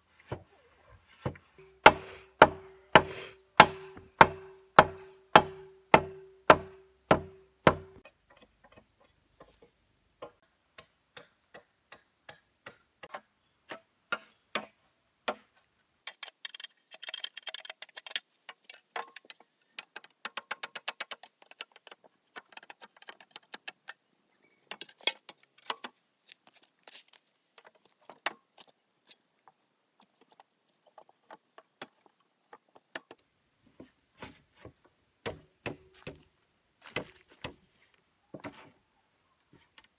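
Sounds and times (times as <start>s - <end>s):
tool striking wood: 1.8s - 8.0s.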